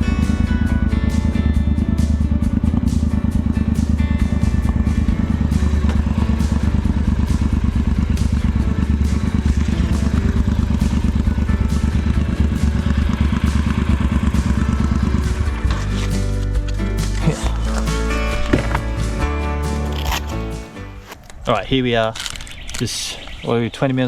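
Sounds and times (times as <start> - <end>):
motorcycle engine running: 0.0 - 21.0
background music: 0.0 - 21.2.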